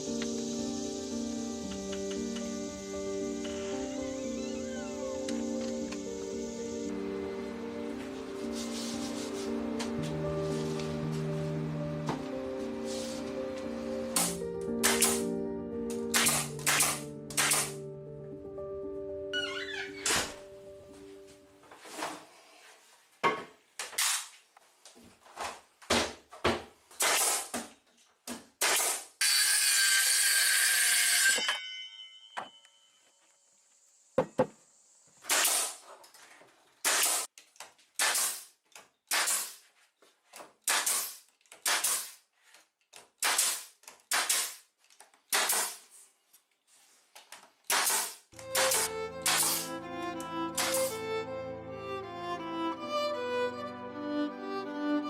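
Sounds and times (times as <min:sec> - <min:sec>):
hand tool strokes on wood: 0:08.4 - 0:09.7.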